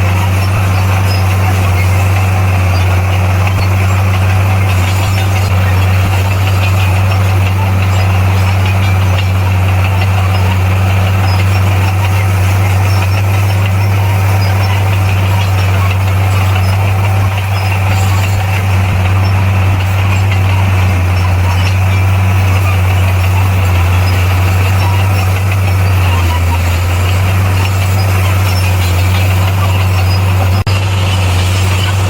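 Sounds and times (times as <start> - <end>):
diesel engine humming: 0.0 - 32.0.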